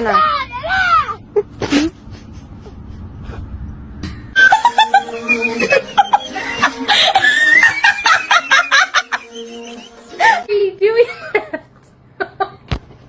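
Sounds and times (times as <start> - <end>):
person laughing: 1.3 - 3.1, 4.4 - 11.6.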